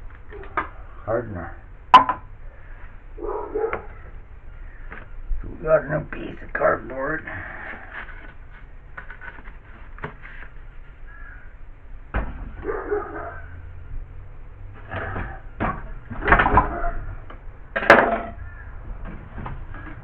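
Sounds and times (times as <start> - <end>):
rustling and knocking materials: 7.5 - 11.0, 14.7 - 20.0.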